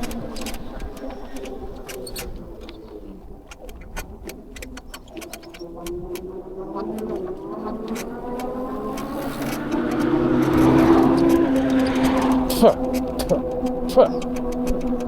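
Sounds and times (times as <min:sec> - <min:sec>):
bike squeaking chirps: 0:00.0 - 0:15.0
tyres and wind rumble: 0:00.0 - 0:15.0.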